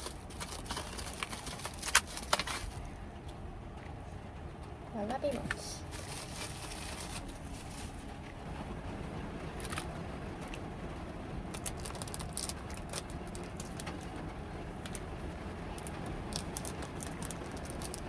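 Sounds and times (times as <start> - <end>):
heavy rain drumming on a roof: 6.8 - 18.0
light clicks and crackles: 11.5 - 14.2.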